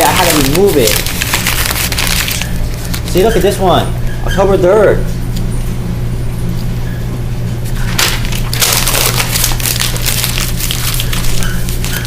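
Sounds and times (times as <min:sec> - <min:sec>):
paper crumpling and rustling: 0:00.0 - 0:03.6, 0:07.7 - 0:12.0
steady low hum: 0:00.0 - 0:12.0.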